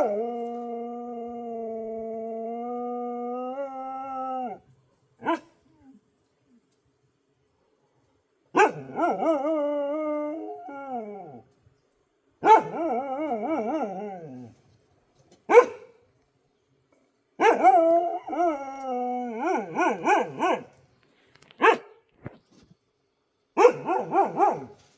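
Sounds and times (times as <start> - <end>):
dog howling: 0.0 - 4.6, 8.6 - 11.4, 12.4 - 14.5, 17.4 - 20.7
dog barking: 8.6 - 8.9, 12.4 - 12.7, 15.5 - 15.9, 17.4 - 17.7, 19.7 - 20.7, 21.6 - 22.0, 23.6 - 24.7.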